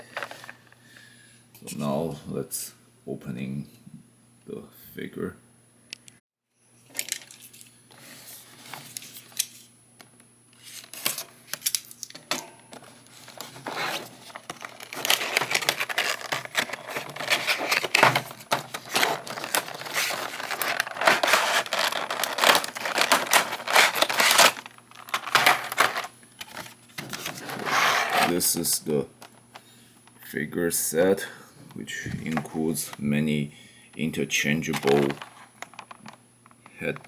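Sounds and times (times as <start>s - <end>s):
plastic packaging crinkling: 12.8s - 28.4s, 34.6s - 37.0s.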